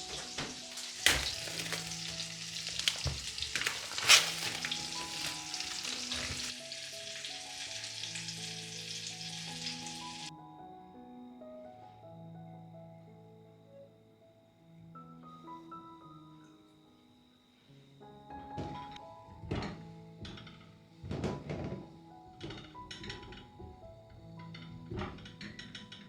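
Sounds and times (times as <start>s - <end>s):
food sizzling in a frying pan: 0.0s - 10.3s
soft background music: 0.0s - 26.0s.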